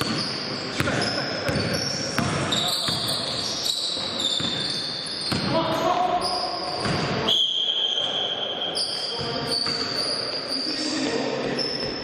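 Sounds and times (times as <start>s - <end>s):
basketball bouncing on court: 0.0s - 7.3s, 9.2s - 9.9s
shoe squeaks: 0.0s - 12.0s.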